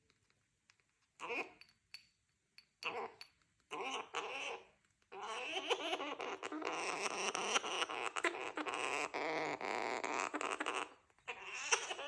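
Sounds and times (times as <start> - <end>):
cockatoo chattering: 2.8 - 12.0.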